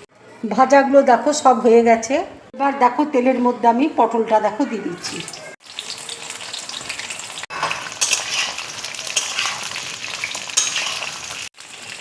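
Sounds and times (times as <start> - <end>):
vegetables sizzling in hot oil: 5.2 - 12.0.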